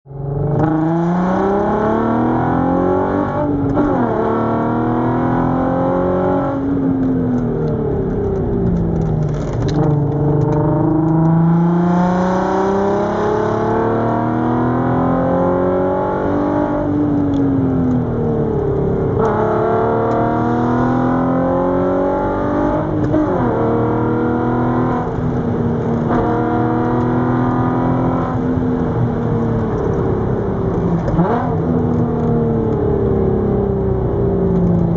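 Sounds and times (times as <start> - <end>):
car engine revving: 0.2 - 34.9.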